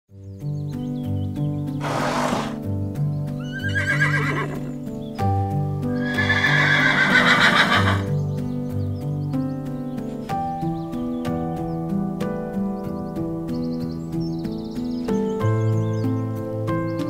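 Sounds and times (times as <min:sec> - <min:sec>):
background music: 0:00.1 - 0:17.0
zebra calling: 0:01.8 - 0:02.6, 0:06.0 - 0:08.1
zebra snort: 0:01.8 - 0:02.6.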